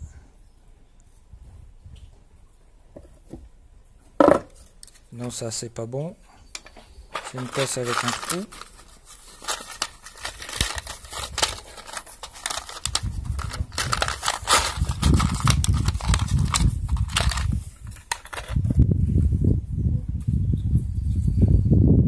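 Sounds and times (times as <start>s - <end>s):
metal parts clicking and rustling: 6.6s - 18.7s.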